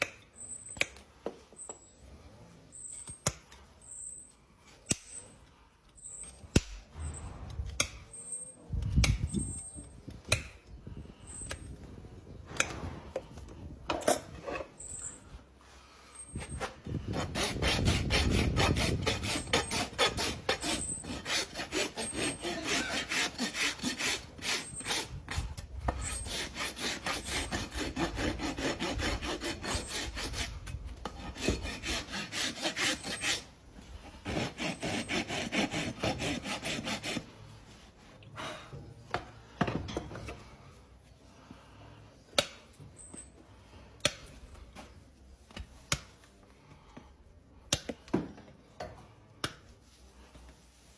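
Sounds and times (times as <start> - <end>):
rasp filing hoof: 16.1 - 37.8.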